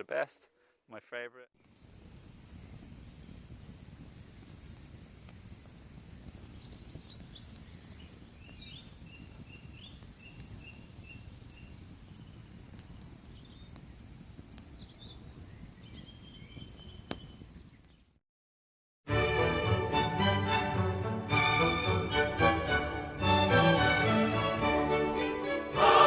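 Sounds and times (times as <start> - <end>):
songbird singing: 6.3 - 12.5, 13.2 - 18.2.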